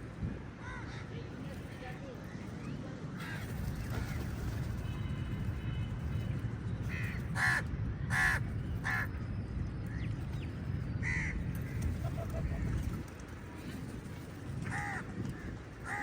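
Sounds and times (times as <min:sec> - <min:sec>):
crows cawing: 0:06.9 - 0:09.0, 0:11.0 - 0:11.8, 0:14.7 - 0:15.0.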